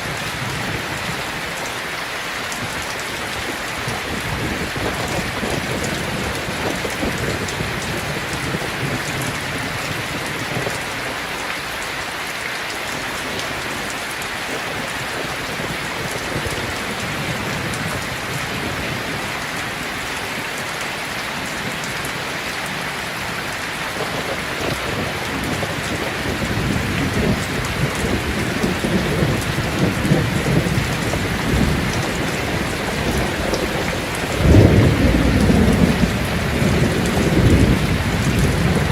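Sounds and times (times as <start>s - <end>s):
heavy rain: 0.0s - 38.9s
rolling thunder: 24.0s - 38.9s.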